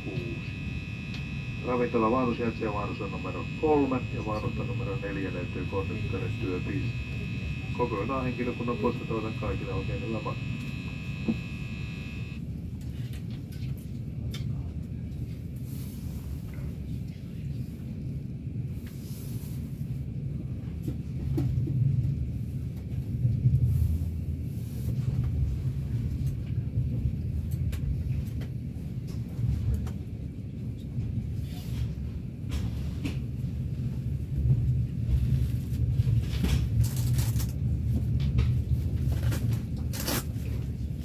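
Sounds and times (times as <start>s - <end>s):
passenger train rumble inside carriage: 12.6s - 41.0s.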